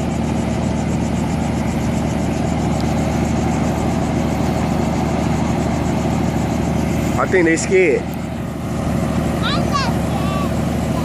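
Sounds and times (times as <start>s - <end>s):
engine drone with fast pulsing: 0.0s - 11.0s.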